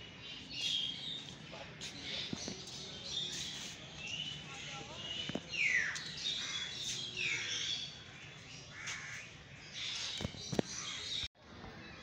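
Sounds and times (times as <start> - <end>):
birds cawing: 5.6 - 11.3.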